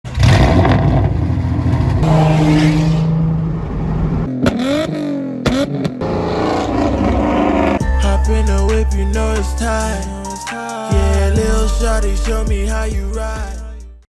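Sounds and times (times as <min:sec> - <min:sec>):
car engine revving: 0:00.1 - 0:10.4.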